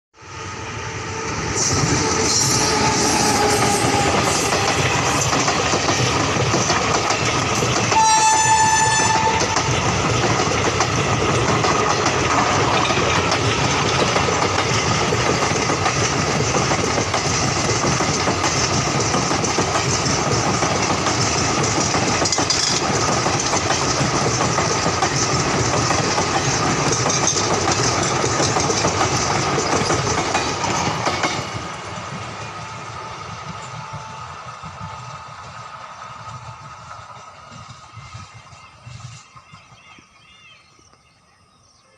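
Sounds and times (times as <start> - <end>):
train wheels rushing: 0.2 - 40.6
train horn: 1.3 - 5.2, 7.9 - 9.8.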